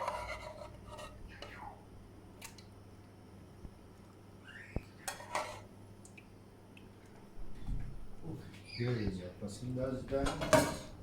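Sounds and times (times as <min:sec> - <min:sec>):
low steady hum: 0:00.0 - 0:11.0
spoon clinking and scraping dishes: 0:05.1 - 0:05.7.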